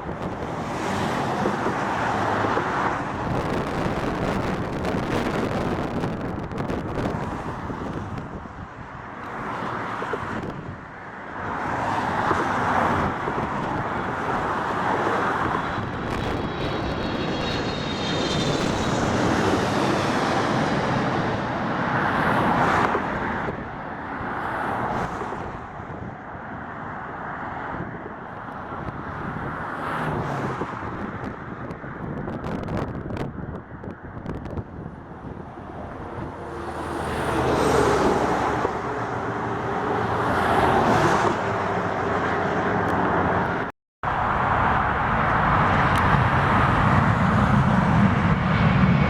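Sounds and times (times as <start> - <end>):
wind buffeting microphone: 0.0 - 23.8, 27.7 - 49.0
jet aircraft passing: 11.5 - 25.5, 34.3 - 49.0.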